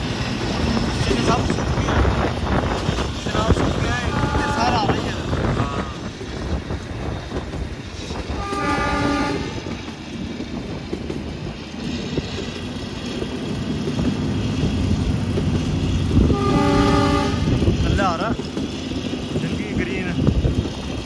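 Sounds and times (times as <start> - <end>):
train wheels rumbling: 0.0 - 21.0
locomotive horn: 4.0 - 5.0, 8.3 - 9.7, 16.2 - 17.6.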